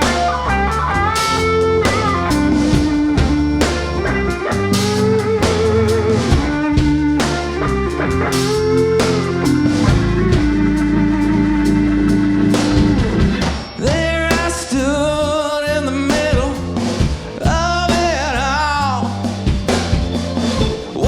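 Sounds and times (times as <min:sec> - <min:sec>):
live blues-rock band: 0:00.0 - 0:21.0
person singing with vibrato: 0:13.4 - 0:19.3.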